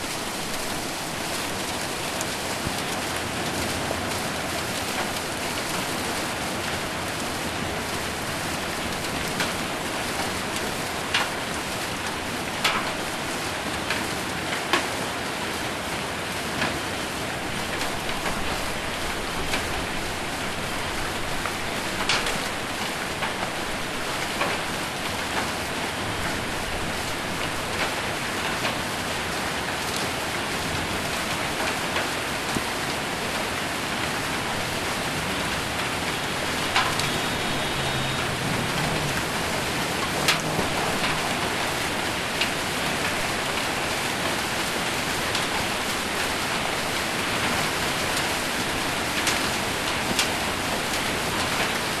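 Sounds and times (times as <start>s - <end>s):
heavy rain on metal roof: 0.0s - 52.0s.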